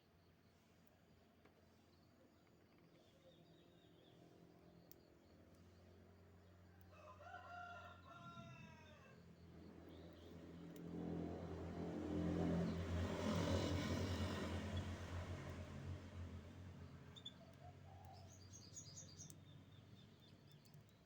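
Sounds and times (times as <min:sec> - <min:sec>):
rooster crowing: 0:06.9 - 0:09.2
vehicle engine: 0:10.9 - 0:17.2.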